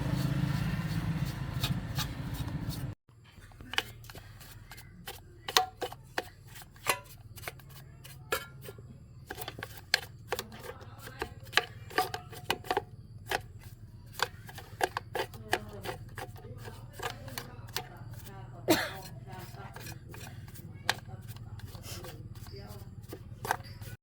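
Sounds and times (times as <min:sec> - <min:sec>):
tools and metal parts clicking: 0:19.4 - 0:24.0.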